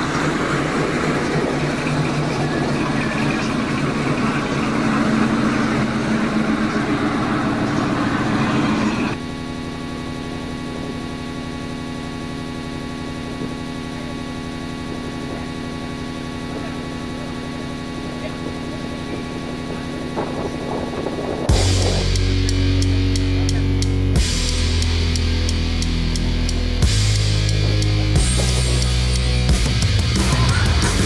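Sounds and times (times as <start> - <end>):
car engine idling: 0.0 - 31.0
car engine running rough: 0.0 - 31.0.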